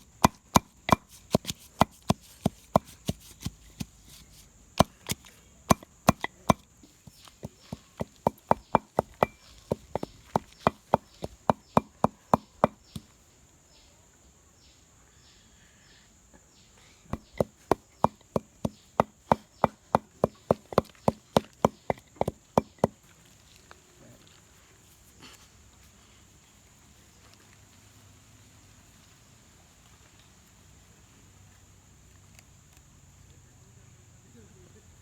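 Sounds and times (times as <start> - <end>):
blade chopping wood: 0.0 - 13.1, 17.1 - 23.0.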